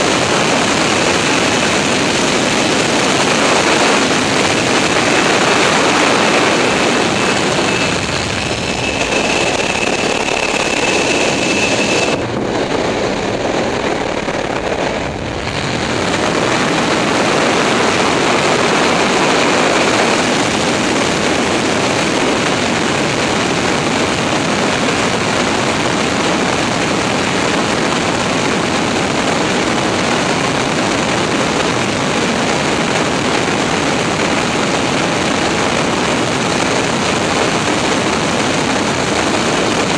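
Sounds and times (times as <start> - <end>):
roar of air and jet engines: 0.0 - 39.9
thin high whine: 0.1 - 16.1.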